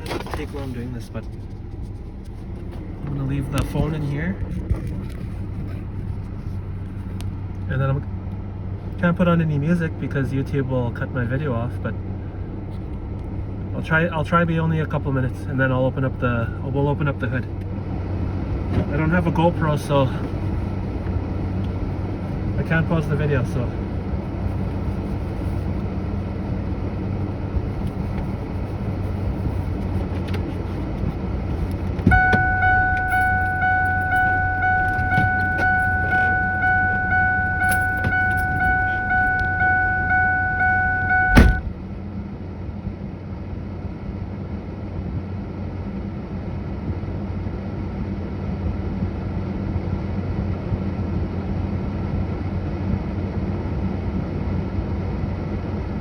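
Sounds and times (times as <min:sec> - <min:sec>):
car engine idling: 0:00.0 - 0:48.4
car door opening: 0:29.8 - 0:41.9
car door slamming: 0:31.8 - 0:41.9
dashboard warning chime: 0:32.0 - 0:41.8.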